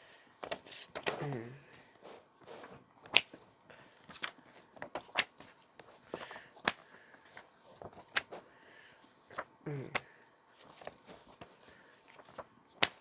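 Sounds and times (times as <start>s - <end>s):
paper rustling: 0.3s - 13.0s
paper slaps and clicks: 3.0s - 3.4s, 4.1s - 6.9s, 7.8s - 8.4s, 12.2s - 13.0s.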